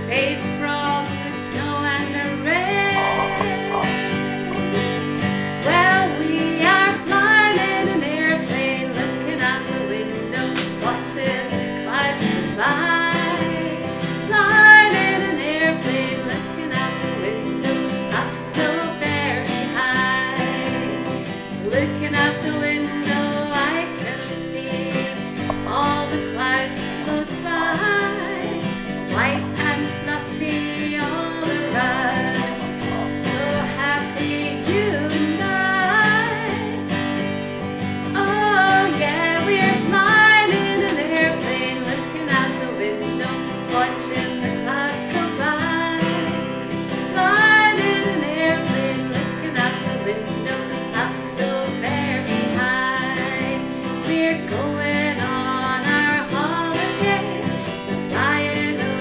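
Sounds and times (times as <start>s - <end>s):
person singing: 0.0s - 13.8s, 38.2s - 46.3s
acoustic guitar strumming: 0.0s - 59.0s.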